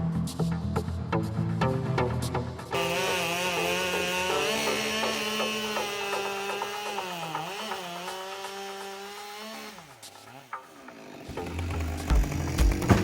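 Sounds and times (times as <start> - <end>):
chainsaw engine running: 2.7 - 13.0.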